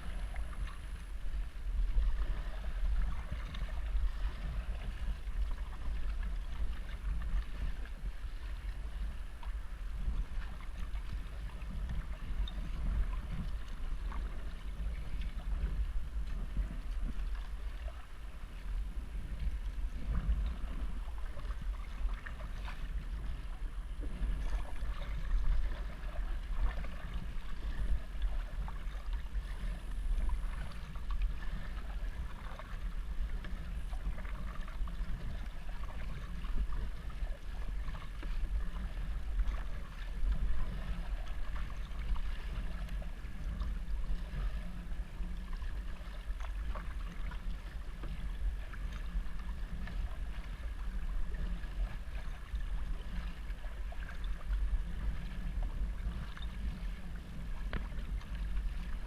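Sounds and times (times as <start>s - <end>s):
steady low rumble: 0.0s - 59.0s
water splashing around kayak: 0.0s - 59.0s.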